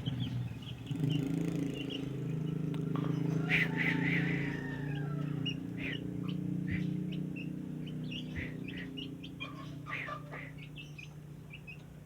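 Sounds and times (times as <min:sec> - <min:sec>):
bird chirps and calls: 0:05.5 - 0:11.9.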